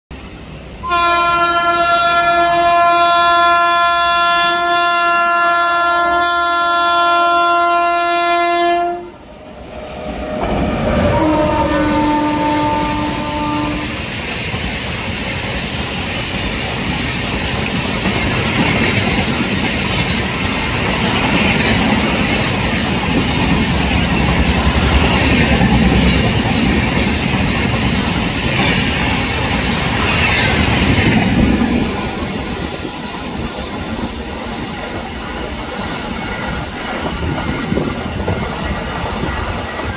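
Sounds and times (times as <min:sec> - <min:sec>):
train horn blasts: 0:00.8 - 0:14.2.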